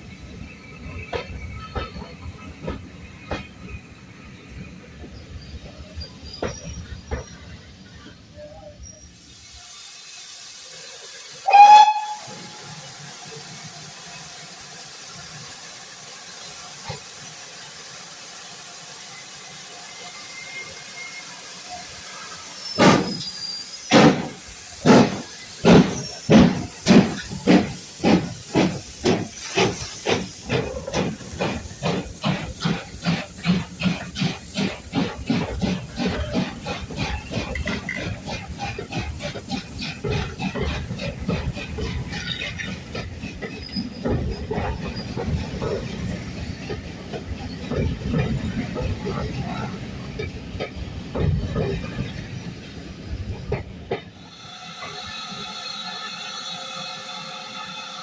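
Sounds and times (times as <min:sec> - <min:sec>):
steam hissing: 0:00.0 - 0:58.0
steam whistle blast: 0:11.4 - 0:12.8, 0:54.4 - 0:58.0
locomotive exhaust beats: 0:23.9 - 0:52.2.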